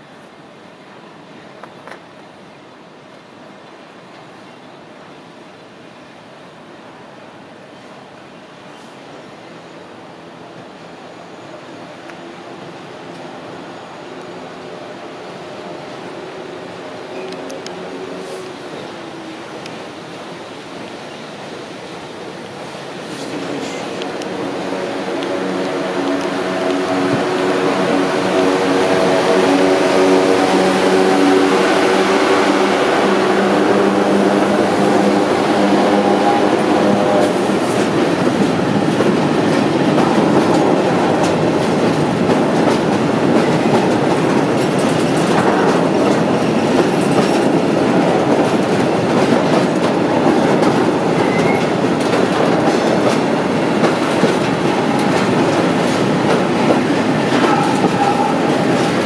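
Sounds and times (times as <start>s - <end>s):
electric locomotive humming: 8.5s - 59.0s.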